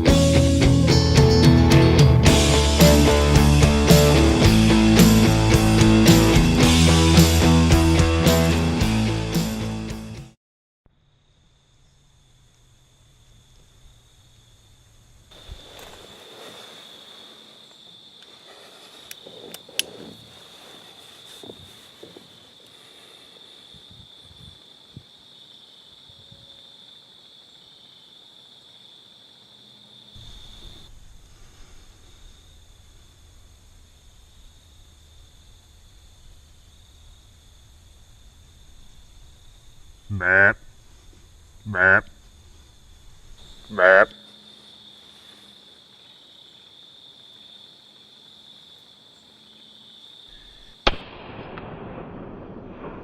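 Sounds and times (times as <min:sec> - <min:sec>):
insect chorus trilling: 0:11.0 - 0:50.9
revolver gunshot: 0:50.8 - 0:53.0
low rumble: 0:51.1 - 0:53.0.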